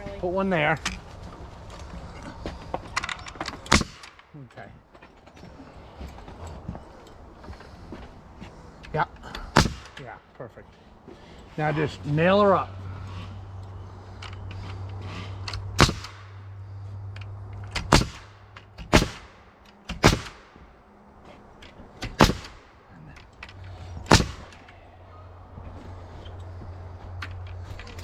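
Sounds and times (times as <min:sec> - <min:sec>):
nail gun firing: 0:03.7 - 0:04.2, 0:09.4 - 0:10.0, 0:15.7 - 0:16.4, 0:17.7 - 0:20.6, 0:22.0 - 0:22.8, 0:24.0 - 0:24.7.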